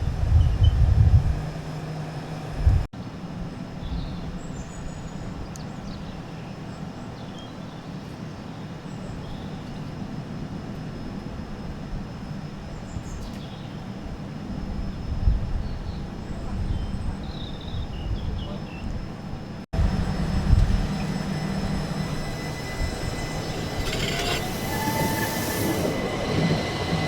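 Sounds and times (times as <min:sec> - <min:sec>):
distant diesel train rumble: 0:00.0 - 0:07.1, 0:13.8 - 0:27.0.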